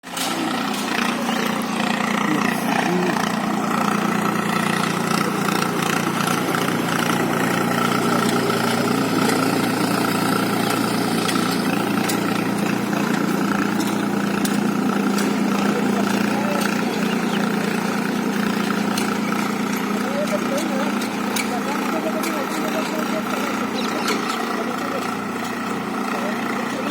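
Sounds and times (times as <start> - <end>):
tractor engine running: 0.0 - 26.9.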